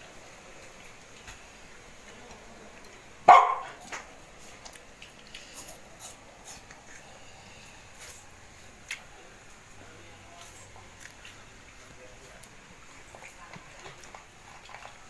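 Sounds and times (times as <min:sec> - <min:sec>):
dog barking: 0:03.3 - 0:03.8.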